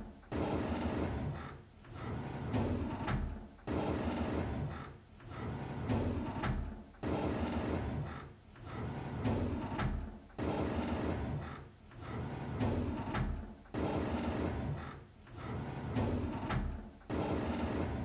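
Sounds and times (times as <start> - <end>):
drawer sliding open: 15.4 - 18.0.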